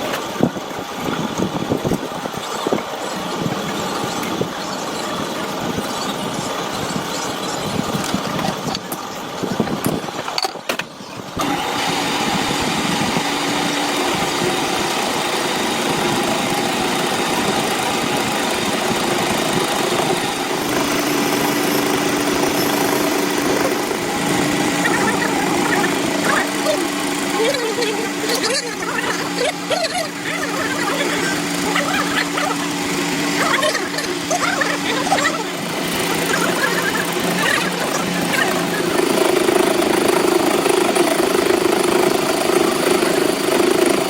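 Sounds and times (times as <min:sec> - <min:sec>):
metal lathe humming: 0:11.1 - 0:44.0.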